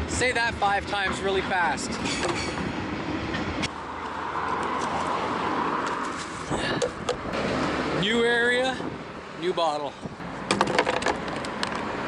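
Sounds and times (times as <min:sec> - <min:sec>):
vehicle passing: 0:00.0 - 0:09.4.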